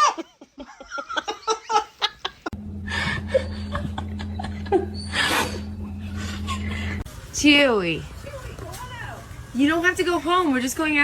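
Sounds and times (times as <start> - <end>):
person laughing: 0.0 - 7.0
steady low hum: 2.5 - 7.1.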